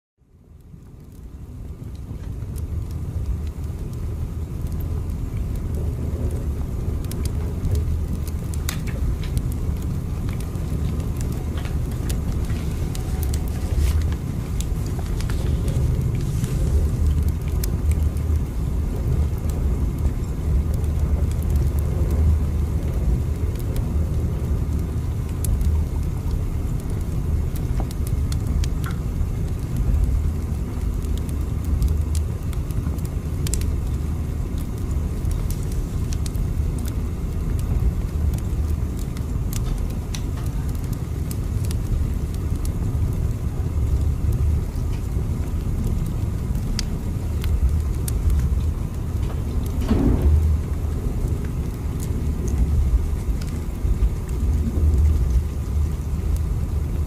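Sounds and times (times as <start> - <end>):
faint clicks and rattles: 4.6 - 24.8, 25.4 - 43.2, 43.9 - 56.4
train rumbling: 46.5 - 56.1.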